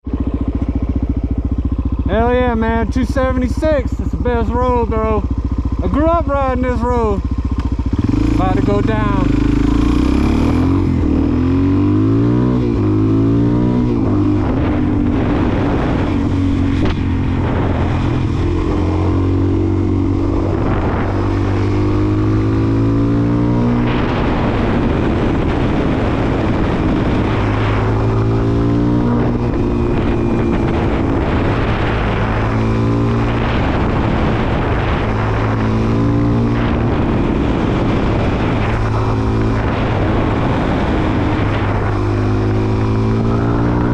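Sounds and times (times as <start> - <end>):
motorcycle engine revving: 0.0 - 43.9
wind rushing: 0.0 - 43.9.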